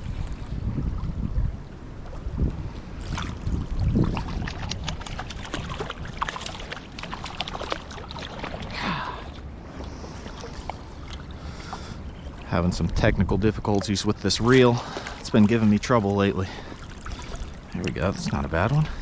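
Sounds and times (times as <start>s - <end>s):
wind on microphone: 0.0s - 6.6s
river water: 0.0s - 19.0s.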